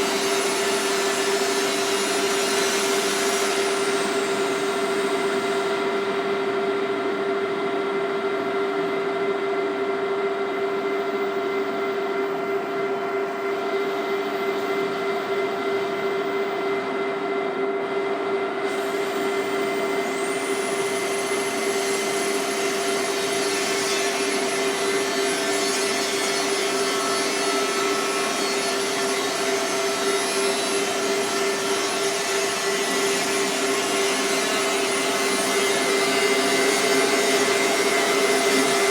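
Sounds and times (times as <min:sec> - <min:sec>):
lathe machine hum: 0:18.6 - 0:38.9.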